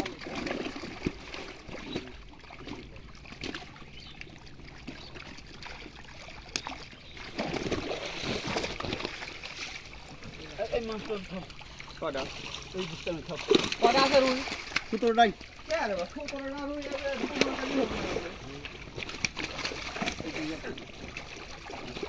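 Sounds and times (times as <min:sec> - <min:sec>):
water splashing in a pond: 0:00.0 - 0:22.0.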